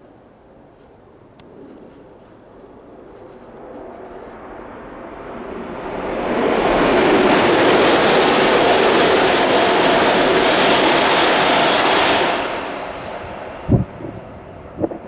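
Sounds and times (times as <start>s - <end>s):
high-speed train rushing past: 0.5s - 15.0s
wind hitting microphone: 7.0s - 15.0s.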